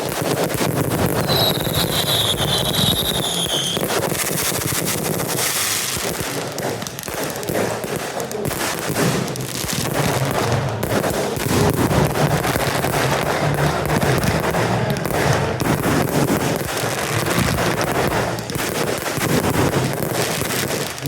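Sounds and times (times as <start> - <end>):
fireworks crackling bangs: 0.0 - 21.0
high falling whistle: 1.2 - 3.8.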